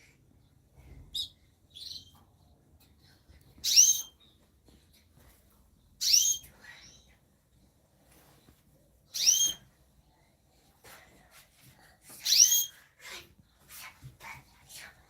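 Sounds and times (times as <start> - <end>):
soft bird chirps: 0.4 - 2.6, 3.5 - 4.5, 5.8 - 7.2, 9.1 - 9.7, 12.2 - 12.8
songbird upward whistled calls: 6.0 - 6.4, 9.2 - 9.6.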